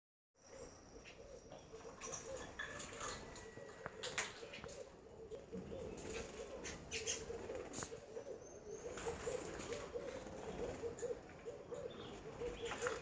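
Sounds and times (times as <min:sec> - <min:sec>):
dove cooing: 0:00.5 - 0:13.0
bird chirps and clicks: 0:01.0 - 0:13.0.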